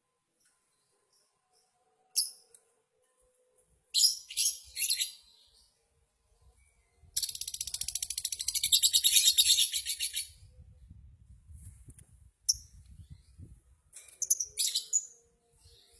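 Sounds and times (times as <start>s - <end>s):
bird shrill chirps: 7.2s - 10.4s, 14.2s - 15.2s.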